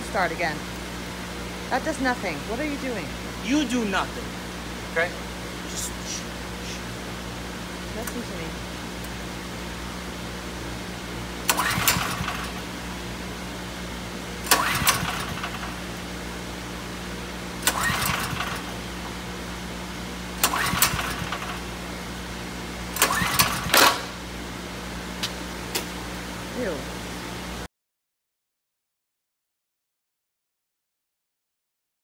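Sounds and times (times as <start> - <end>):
steady low hum: 0.0 - 27.7
generator recoil starter pulls: 11.4 - 12.8, 14.4 - 16.0, 17.6 - 19.0, 20.4 - 21.7, 22.9 - 24.2
engine turning over: 11.4 - 13.0, 14.4 - 16.1, 17.6 - 19.3, 20.3 - 21.9, 22.8 - 24.2.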